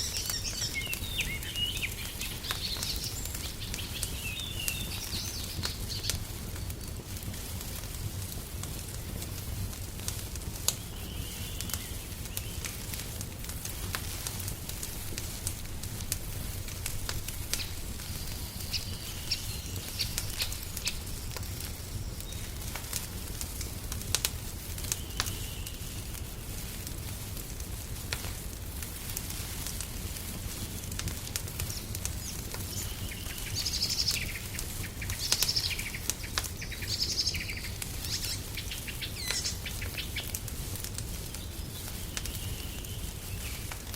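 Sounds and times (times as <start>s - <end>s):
birds chirping: 0.0s - 7.0s, 17.2s - 22.7s, 31.6s - 40.4s, 41.2s - 43.7s
wood fire crackling: 0.0s - 43.9s.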